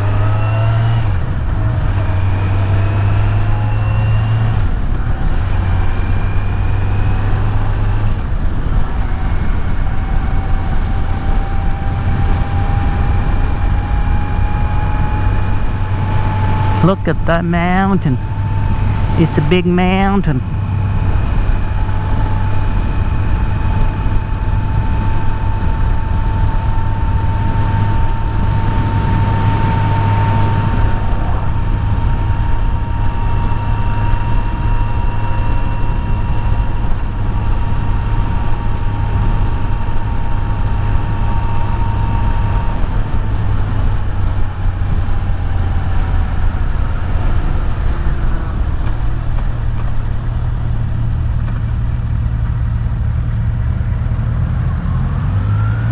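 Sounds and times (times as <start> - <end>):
motorcycle engine cruising: 0.0 - 16.8, 20.4 - 55.9
wind noise: 20.4 - 55.8.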